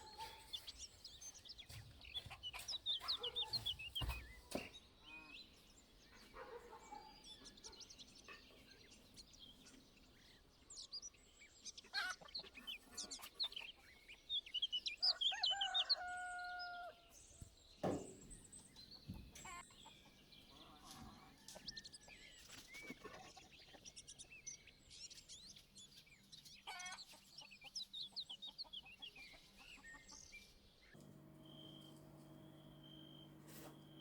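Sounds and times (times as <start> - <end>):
chickens clucking: 0.0 - 0.8, 1.6 - 4.7, 11.8 - 14.2
drawn-out chicken call: 15.0 - 17.1
knock: 17.8 - 18.2.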